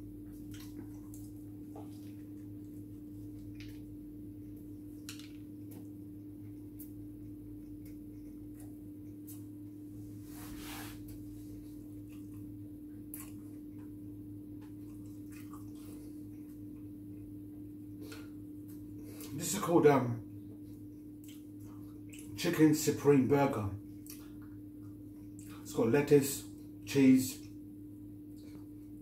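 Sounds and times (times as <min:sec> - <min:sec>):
person chewing food: 0:00.0 - 0:10.2, 0:11.0 - 0:19.3, 0:20.4 - 0:22.4, 0:23.9 - 0:25.6
low electrical hum: 0:00.0 - 0:29.0
wet mouth clicks and smacks: 0:00.4 - 0:02.1, 0:20.7 - 0:22.4, 0:24.0 - 0:25.6.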